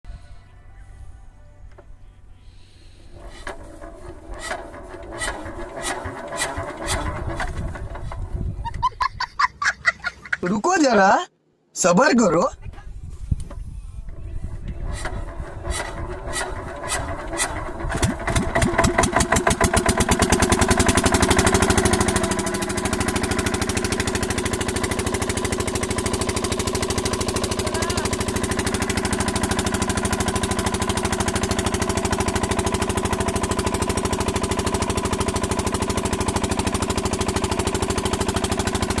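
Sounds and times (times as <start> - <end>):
water pump engine running: 2.6 - 8.5, 14.2 - 39.0.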